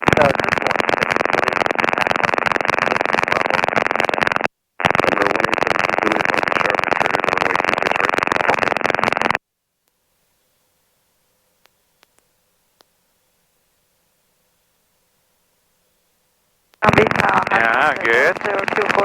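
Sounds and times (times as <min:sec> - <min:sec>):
helicopter cockpit noise over intercom: 0:04.9 - 0:09.2, 0:16.8 - 0:19.0.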